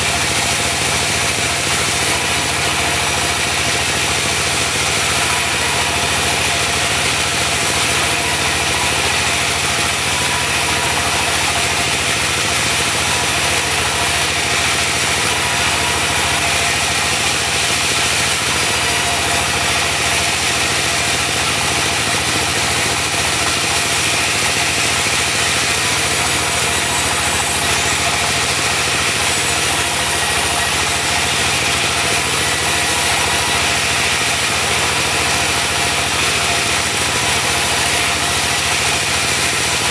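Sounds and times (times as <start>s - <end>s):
band saw hissing: 5.0s - 36.1s.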